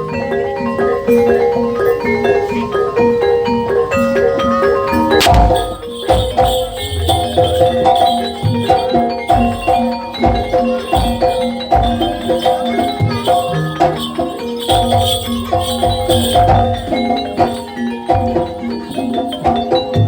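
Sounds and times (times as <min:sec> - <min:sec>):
loud struck hit: 0:05.2 - 0:06.4
low drum beats: 0:05.2 - 0:09.7
metal gong-chime notes: 0:05.2 - 0:20.0.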